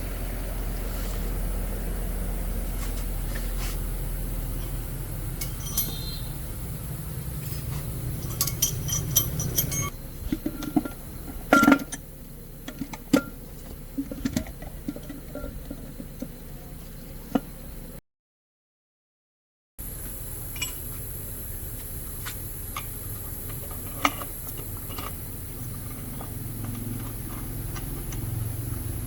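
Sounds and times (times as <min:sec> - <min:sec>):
low machine hum: 0:00.0 - 0:18.0, 0:19.8 - 0:29.0
metal tools clinking and knocking: 0:05.4 - 0:06.6, 0:07.4 - 0:12.0.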